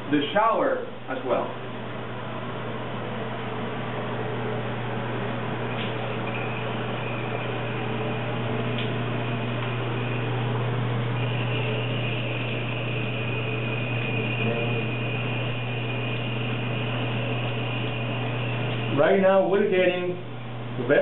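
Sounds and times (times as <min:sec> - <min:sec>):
low steady hum: 0:00.0 - 0:21.0
thin high tone: 0:06.0 - 0:19.2.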